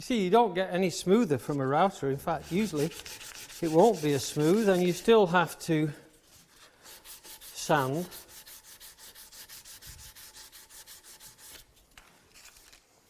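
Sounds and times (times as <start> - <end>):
sandpaper rubbing on wood: 2.2 - 5.6, 6.8 - 11.7.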